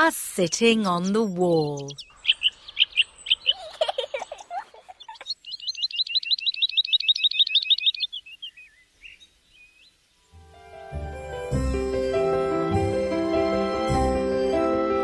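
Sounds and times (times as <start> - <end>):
small birds chirping and trilling: 0.4 - 10.3.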